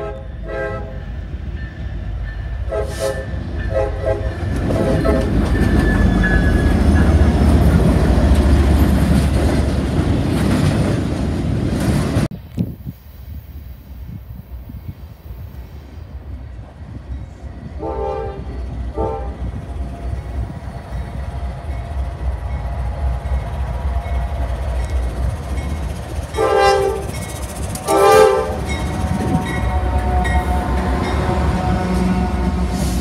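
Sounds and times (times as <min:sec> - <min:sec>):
train horn blasts: 0:00.0 - 0:01.1, 0:02.5 - 0:07.3, 0:17.7 - 0:19.5, 0:26.3 - 0:33.0
diesel locomotives rumbling: 0:00.0 - 0:33.0.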